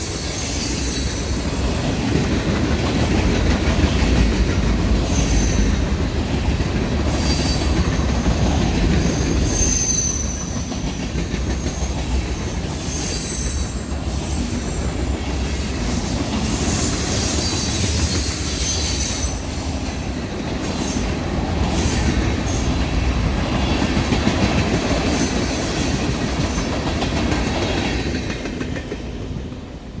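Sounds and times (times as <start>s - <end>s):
high wheel squeal: 0.0s - 1.5s, 5.0s - 5.8s, 7.1s - 8.0s, 9.0s - 10.7s, 11.6s - 19.6s
train cars rumbling past: 0.0s - 30.0s
wheels clicking over rail joints: 1.4s - 22.9s, 23.8s - 29.5s.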